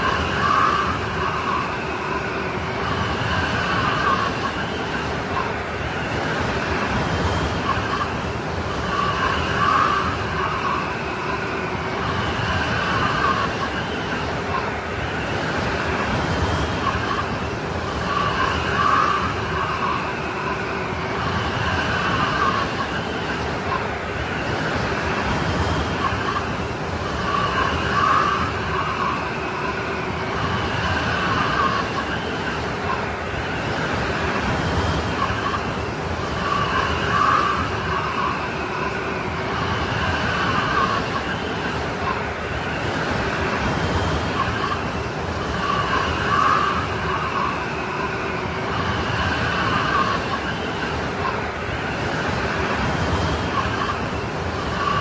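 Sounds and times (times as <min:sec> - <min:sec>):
howling snowstorm wind: 0:00.0 - 0:55.0.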